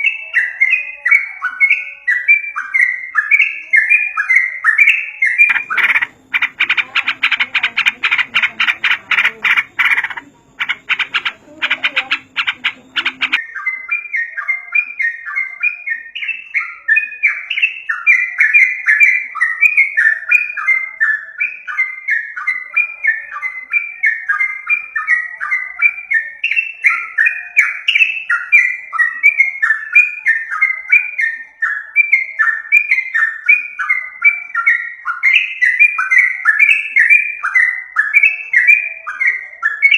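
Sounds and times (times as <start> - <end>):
bright falling bird notes: 0.0 - 16.6
bird rattling chatter: 5.5 - 13.4.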